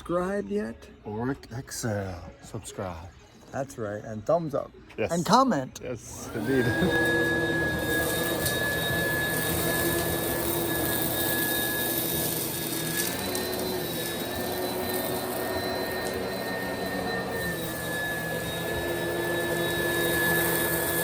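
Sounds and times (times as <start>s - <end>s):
vacuum cleaner running on carpet: 6.1s - 21.0s.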